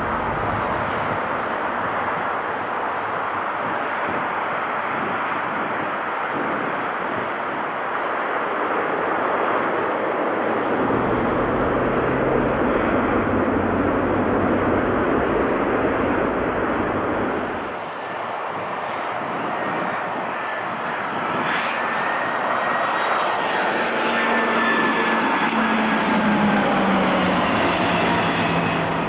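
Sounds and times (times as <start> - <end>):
jet engines rushing: 0.0 - 29.0
low hum: 10.7 - 17.7.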